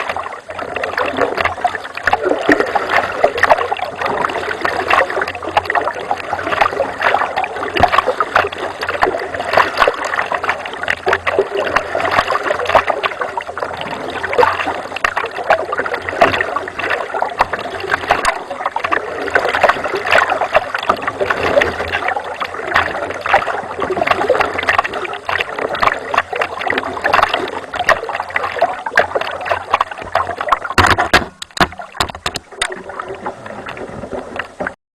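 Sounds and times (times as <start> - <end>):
water splashing against kayak: 0.0 - 34.8.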